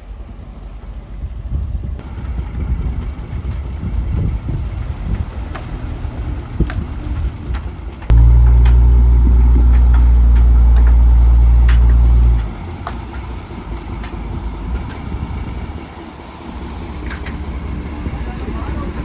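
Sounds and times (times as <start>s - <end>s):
low mechanical hum: 8.1s - 12.6s
engine rumble: 8.1s - 19.0s.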